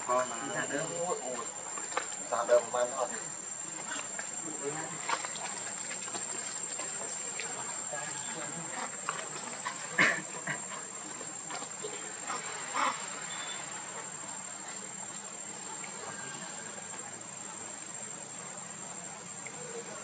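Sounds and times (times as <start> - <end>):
high-pitched insect trill: 0.0 - 20.0
low background noise: 0.0 - 20.0.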